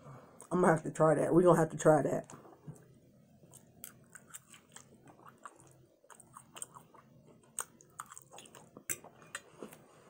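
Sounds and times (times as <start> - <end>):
close-up chewing: 2.8 - 9.9.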